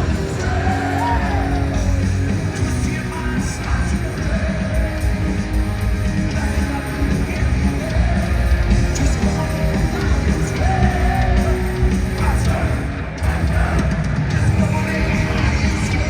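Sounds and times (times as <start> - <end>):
person singing: 0.0 - 5.4
heavy metal band playing live: 0.0 - 16.0.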